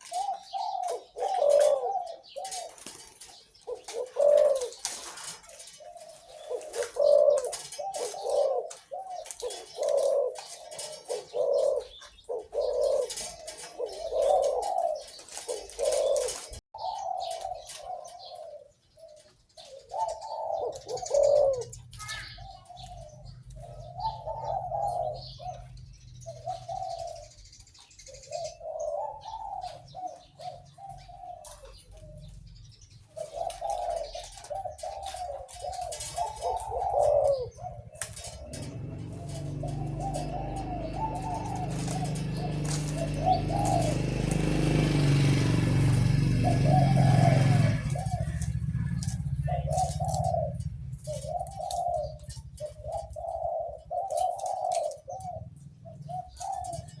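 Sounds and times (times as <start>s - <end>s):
bird chirps: 0.0s - 57.0s
dove cooing: 0.0s - 57.0s.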